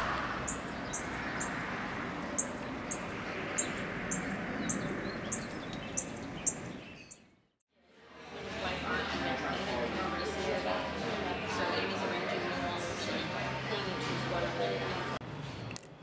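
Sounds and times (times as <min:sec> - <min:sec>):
bird chirping: 0:00.4 - 0:01.6, 0:02.3 - 0:07.6.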